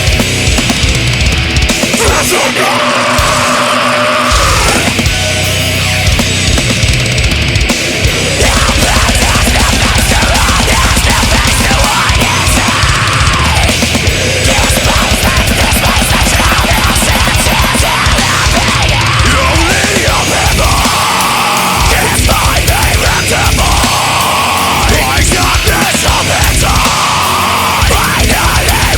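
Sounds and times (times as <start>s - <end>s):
distorted guitars: 0.0s - 28.9s
fast driving drums: 0.0s - 28.9s
lead guitar bending and sliding: 0.0s - 28.9s.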